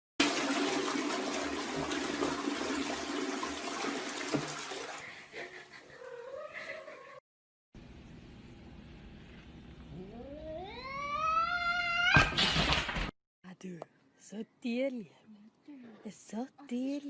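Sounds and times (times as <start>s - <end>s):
cat meowing: 10.0s - 12.3s.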